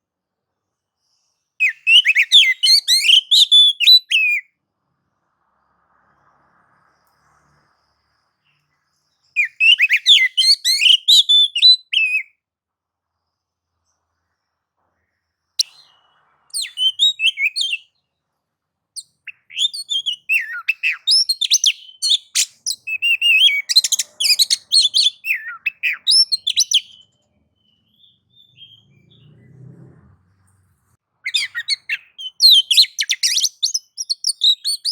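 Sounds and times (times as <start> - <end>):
magpie-robin singing rapid song: 1.6 - 4.4, 9.3 - 12.3, 15.6 - 18.0, 19.0 - 29.3, 31.2 - 34.9.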